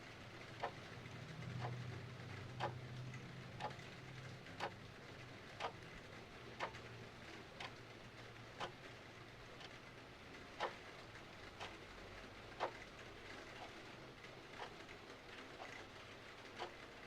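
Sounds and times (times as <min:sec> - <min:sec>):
clock ticking: 0:00.6 - 0:00.8, 0:01.4 - 0:01.8, 0:02.4 - 0:04.9, 0:05.5 - 0:06.9, 0:07.5 - 0:07.8, 0:08.6 - 0:08.8, 0:10.6 - 0:11.8, 0:12.6 - 0:12.8, 0:13.5 - 0:13.8, 0:14.6 - 0:16.0, 0:16.6 - 0:16.8.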